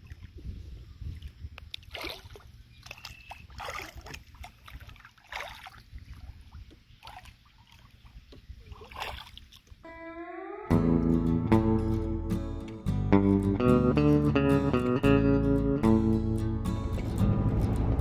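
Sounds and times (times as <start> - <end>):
paddle splashes and drips: 0.0 - 0.5, 1.1 - 9.8
low rumble: 15.4 - 18.0.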